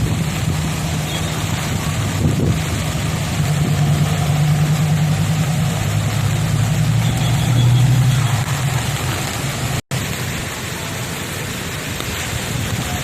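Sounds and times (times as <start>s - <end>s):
engine humming: 0.0s - 12.4s
hiss of rain or water: 0.0s - 13.0s.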